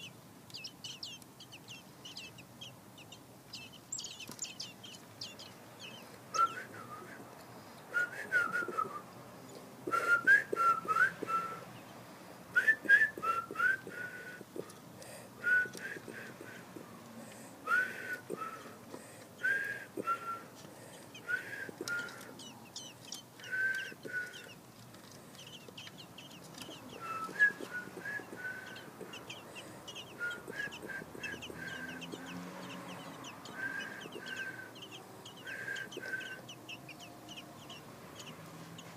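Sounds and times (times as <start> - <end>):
fainter higher chirps: 0.0 - 7.1, 21.2 - 24.6, 25.4 - 38.9
bird chirping: 0.0 - 14.8, 19.4 - 38.9.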